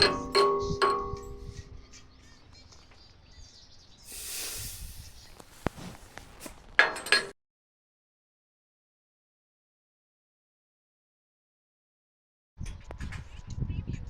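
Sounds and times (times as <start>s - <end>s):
sharp metal knocks: 0.0s - 1.8s
hissing scrape on steel: 4.1s - 6.2s.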